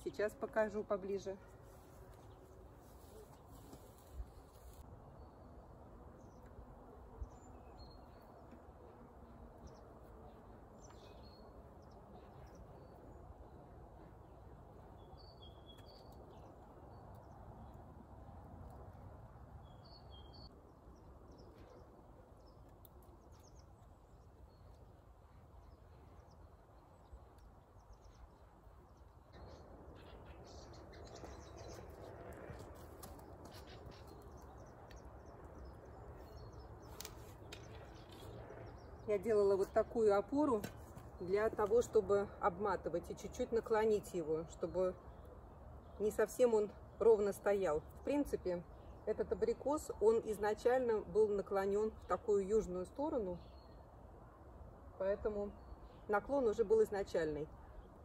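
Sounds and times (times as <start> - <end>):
small birds chirping: 0.0 - 18.9, 19.6 - 54.0
rustling: 1.5 - 4.9.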